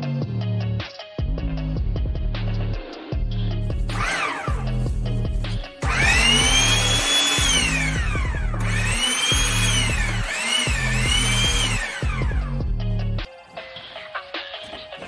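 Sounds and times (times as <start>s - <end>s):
background music with beat: 0.0s - 15.0s
power drill whining: 3.9s - 4.8s, 5.8s - 12.6s.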